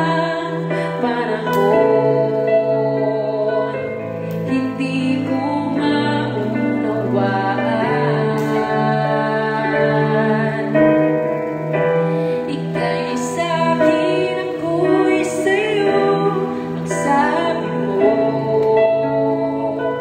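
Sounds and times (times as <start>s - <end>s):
person singing gently: 0.0s - 11.5s
sustained keyboard chords: 0.0s - 20.0s.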